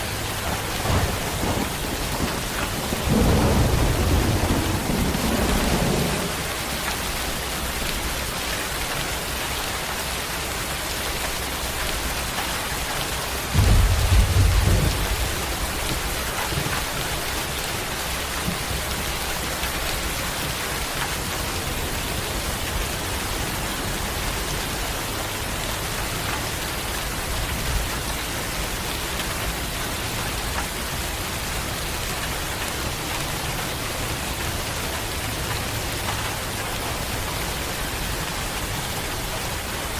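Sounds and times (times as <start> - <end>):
thunder rolling: 0.0 - 6.8, 13.5 - 17.5
heavy rain falling: 0.0 - 39.9.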